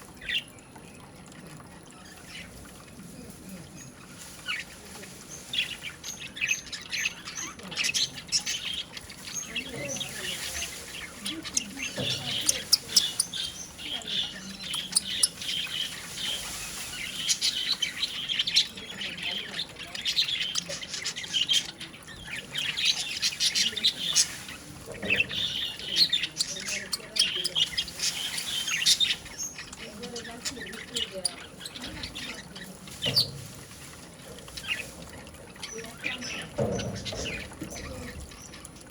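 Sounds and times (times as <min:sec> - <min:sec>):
budgerigar chirping and chattering: 0:05.4 - 0:33.4.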